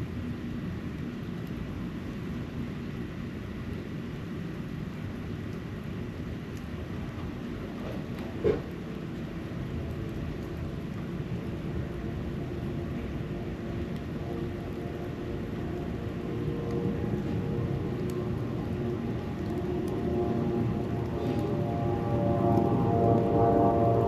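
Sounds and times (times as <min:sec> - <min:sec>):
distant motor rumble: 0:07.0 - 0:24.0.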